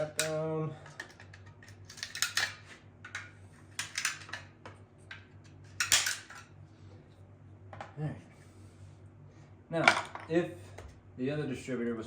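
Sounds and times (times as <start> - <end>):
metal tools clicking and clinking: 0.0 - 4.4, 5.8 - 6.5
steady low hum: 0.0 - 12.0.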